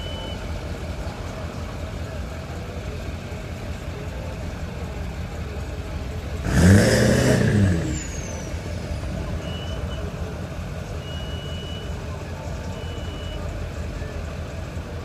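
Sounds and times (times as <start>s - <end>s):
street traffic rumbling: 0.0s - 15.0s
vehicle engine revving: 6.2s - 11.0s.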